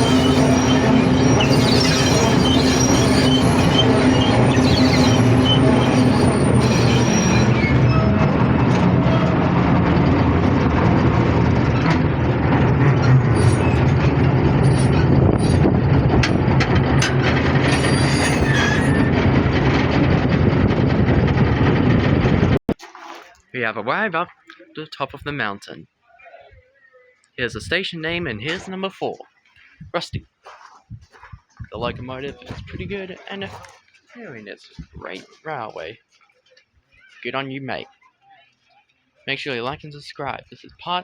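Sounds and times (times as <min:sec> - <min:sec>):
high wheel squeals: 0:00.0 - 0:20.4
diesel locomotive engine: 0:00.0 - 0:22.6
wheel and rail noise: 0:00.0 - 0:22.6.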